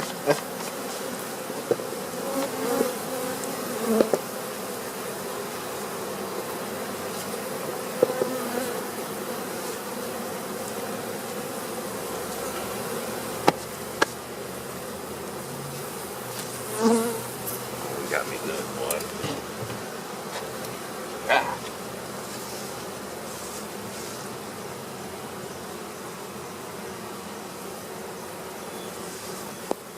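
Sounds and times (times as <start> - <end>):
sharp clicks from hive handling: 0.0 - 2.7, 3.4 - 4.3, 13.4 - 14.2, 18.8 - 20.8, 29.6 - 29.9
honey bees buzzing: 0.0 - 29.9.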